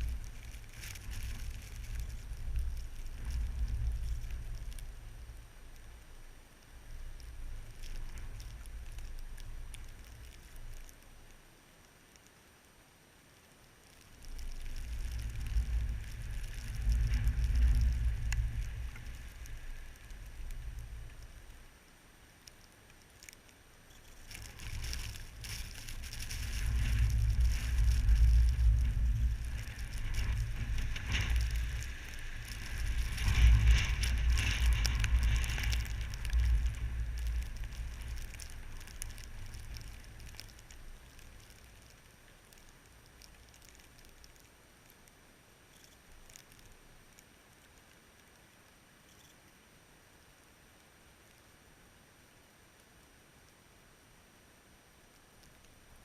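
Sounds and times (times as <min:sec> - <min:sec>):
blizzard wind gusts: 0:00.0 - 0:11.6, 0:13.7 - 0:42.6
crackly hiss: 0:00.0 - 0:56.0.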